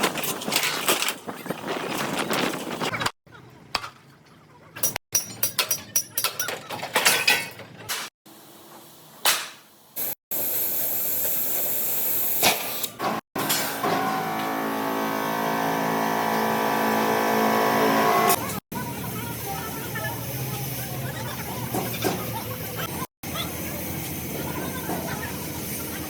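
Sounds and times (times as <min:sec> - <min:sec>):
vehicle engine running: 0:13.8 - 0:18.9.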